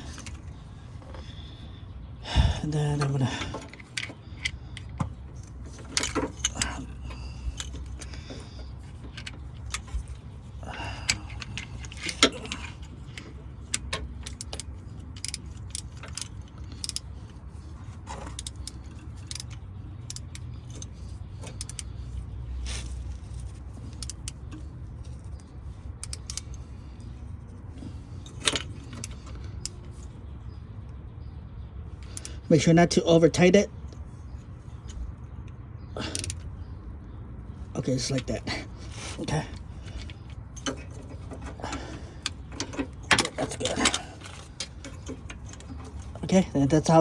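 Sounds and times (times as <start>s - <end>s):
steady low hum: 0.0s - 47.0s
socket wrench clicking: 3.0s - 17.4s, 18.2s - 26.9s, 28.2s - 30.1s, 34.8s - 36.6s, 39.3s - 46.2s.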